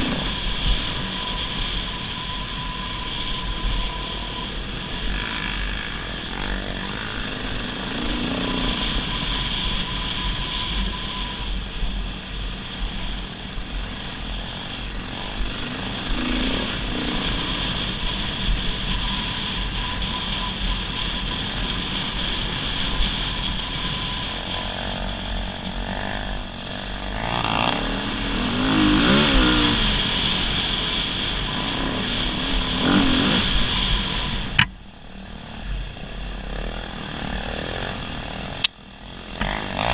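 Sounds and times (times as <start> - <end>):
dirt bike engine revving: 0.0 - 1.3, 14.9 - 18.2, 21.3 - 34.7, 36.1 - 39.9.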